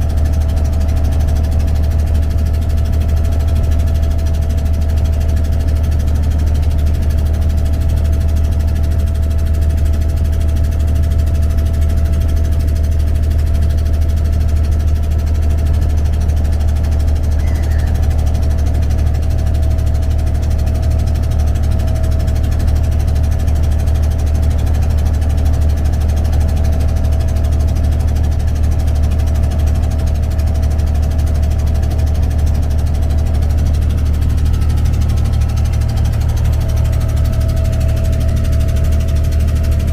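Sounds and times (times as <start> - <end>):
ferry engine humming: 0.0 - 39.9.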